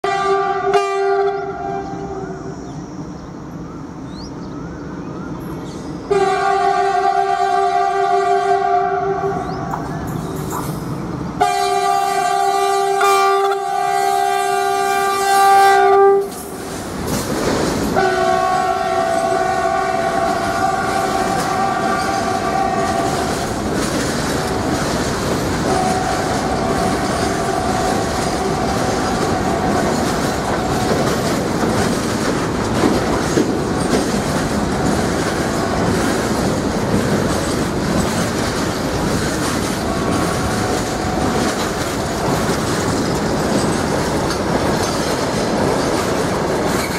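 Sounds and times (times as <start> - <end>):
train horn blasts: 0.0 - 2.6, 6.1 - 9.6, 11.4 - 16.6, 18.0 - 23.6, 25.6 - 31.1, 39.9 - 41.5
clickety-clack of train wheels: 9.4 - 46.9
wagons rumbling past: 16.3 - 46.9.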